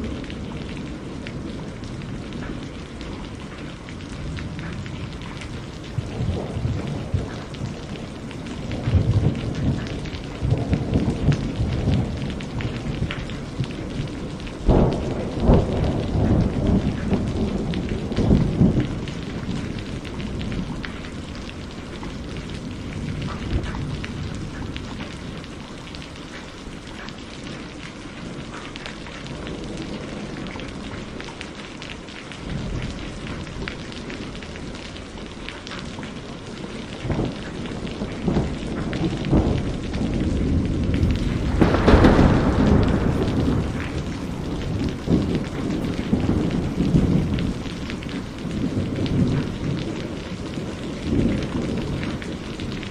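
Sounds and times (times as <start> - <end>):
steady rain: 0.0 - 52.9
thunder rumbling: 0.0 - 52.9
sharp thunder crack: 38.2 - 49.5.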